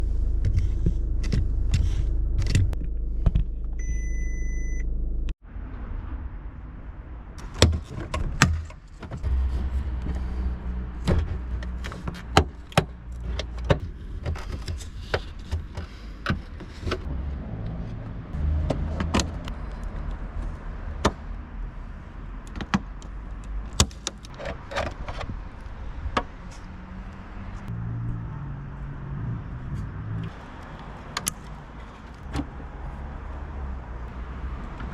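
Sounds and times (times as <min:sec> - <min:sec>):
car engine running: 0:00.0 - 0:05.3
short electronic beep: 0:03.8 - 0:04.9.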